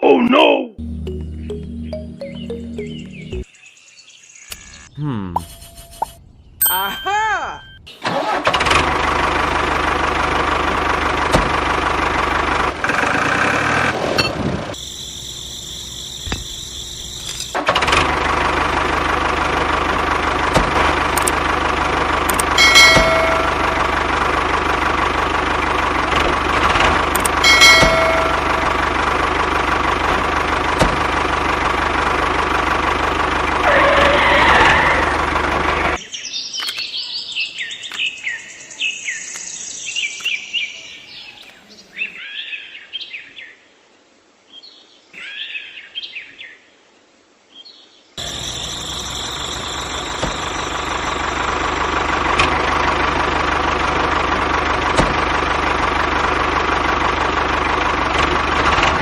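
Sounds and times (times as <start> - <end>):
tractor engine running: 0.8 - 3.5, 7.6 - 36.0, 48.2 - 59.0.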